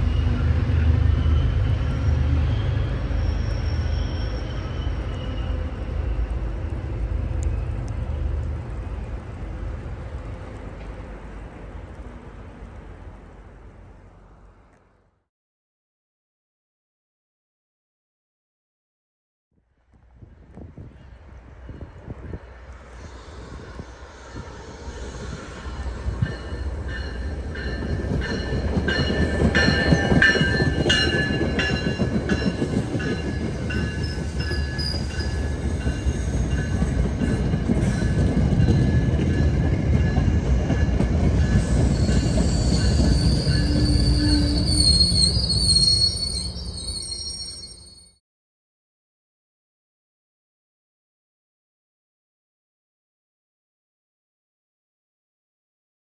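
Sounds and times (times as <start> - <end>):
train wheels rumbling on rail: 0.0 - 14.9, 20.0 - 47.5
high wheel squeal: 0.1 - 6.4, 41.5 - 48.2.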